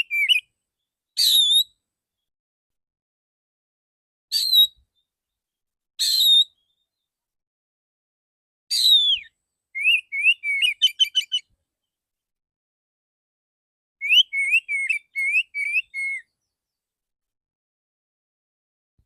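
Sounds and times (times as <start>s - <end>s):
bird singing whistled notes: 0.0s - 0.5s, 1.2s - 1.8s, 4.3s - 5.1s, 6.0s - 7.0s, 8.7s - 11.5s, 14.0s - 16.8s.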